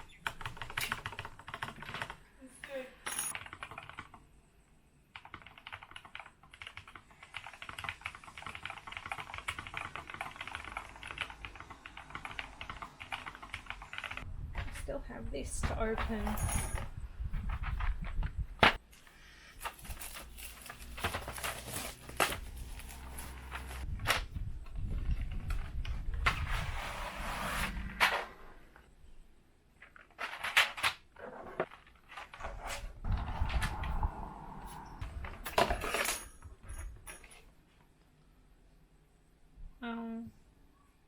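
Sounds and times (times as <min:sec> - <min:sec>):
packaging rustling: 0:19.6 - 0:23.9.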